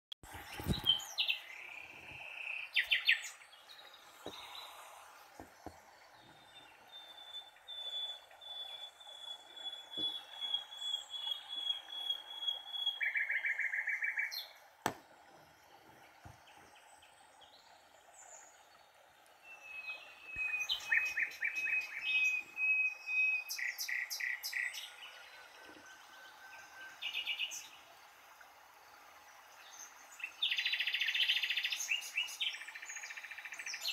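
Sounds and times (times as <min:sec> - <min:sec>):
songbird trilling and chirping: 0:06.4 - 0:14.6, 0:19.5 - 0:26.1.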